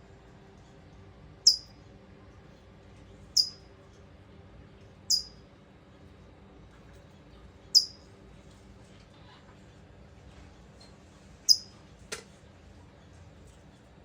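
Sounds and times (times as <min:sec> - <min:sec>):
bird alarm chips: 0:01.5 - 0:01.7, 0:03.4 - 0:03.6, 0:05.1 - 0:05.3, 0:07.8 - 0:08.0, 0:11.5 - 0:11.7.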